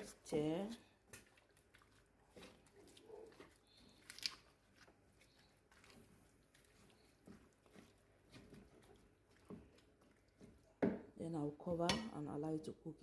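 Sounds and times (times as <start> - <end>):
stick stirring meat in a pot: 0.0 - 13.0.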